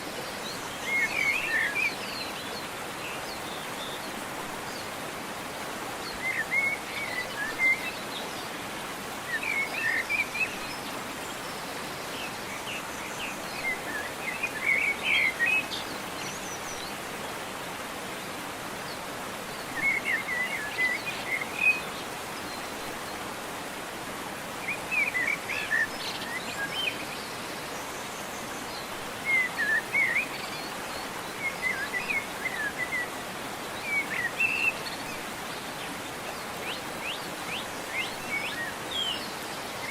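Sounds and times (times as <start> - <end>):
waterfall rushing: 0.0 - 39.9
songbird chirping: 24.6 - 39.9.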